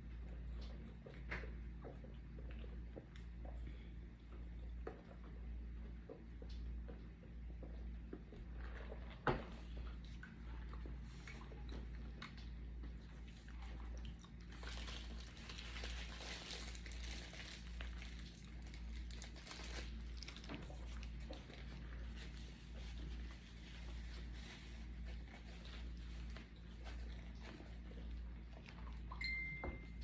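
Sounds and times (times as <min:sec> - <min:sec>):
chewing crunches: 0:10.0 - 0:22.2
food wrapper crinkling: 0:14.3 - 0:27.2.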